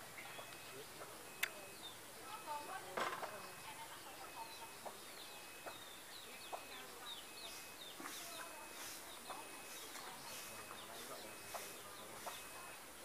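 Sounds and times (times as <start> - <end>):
small birds chirping: 0.0 - 13.0
sharp clicks: 1.4 - 1.6.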